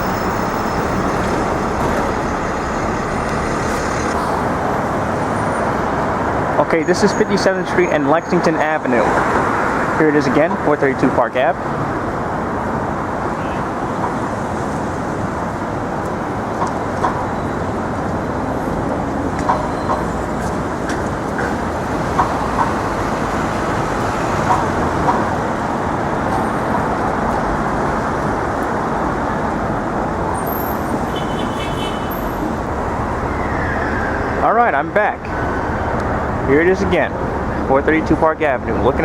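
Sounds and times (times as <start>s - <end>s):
city street traffic: 0.0s - 39.0s.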